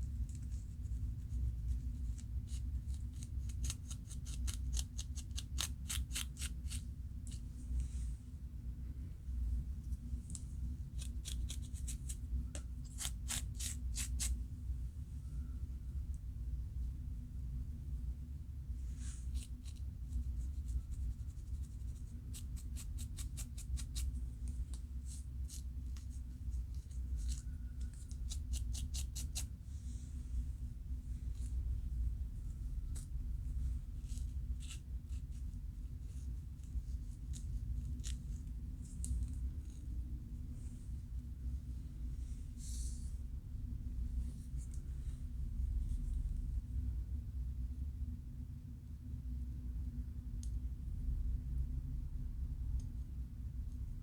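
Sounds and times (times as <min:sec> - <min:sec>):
scratching on scalp: 0:00.3 - 0:07.4, 0:10.3 - 0:14.4, 0:19.0 - 0:29.5
scalp scratching: 0:10.9 - 0:12.2, 0:12.8 - 0:14.4, 0:19.0 - 0:24.2, 0:26.8 - 0:29.5.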